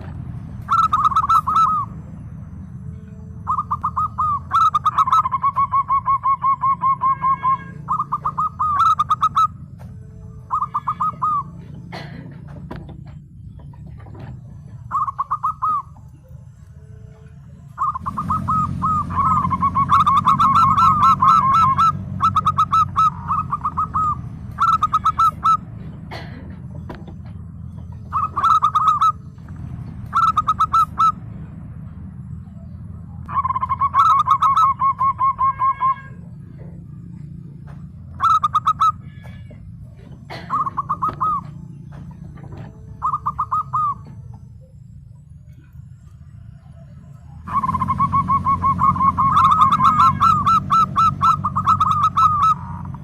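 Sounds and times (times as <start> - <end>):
dove cooing: 0.0 - 2.1, 2.7 - 16.7, 17.6 - 31.3, 31.9 - 44.8, 46.4 - 53.0.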